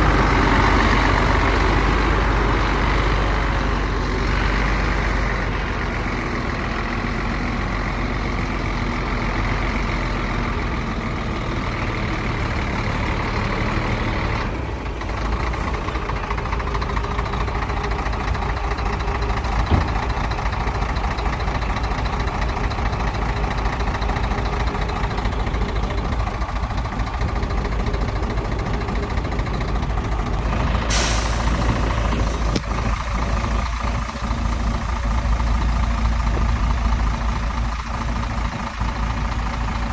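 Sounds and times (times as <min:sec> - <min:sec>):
heavy diesel machinery running: 0:00.0 - 0:39.9
air brake hiss: 0:30.9 - 0:34.0.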